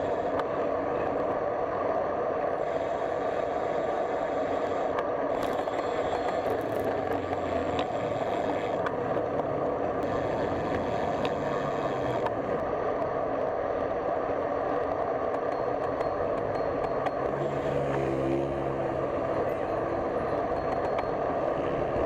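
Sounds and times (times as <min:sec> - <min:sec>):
bicycle riding along a road: 0:00.0 - 0:22.0
faint ticks: 0:03.4 - 0:12.6.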